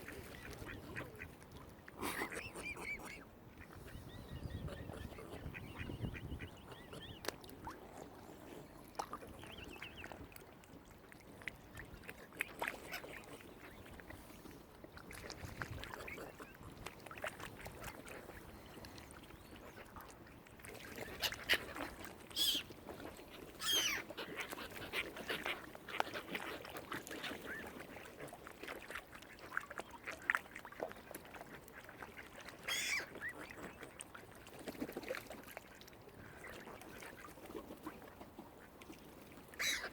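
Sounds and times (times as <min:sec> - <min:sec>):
waterfowl calls and clicks: 0:00.0 - 0:39.9
high-pitched waterfowl calls: 0:02.1 - 0:07.8, 0:21.1 - 0:22.7, 0:23.6 - 0:25.6, 0:32.4 - 0:34.0, 0:39.5 - 0:39.9.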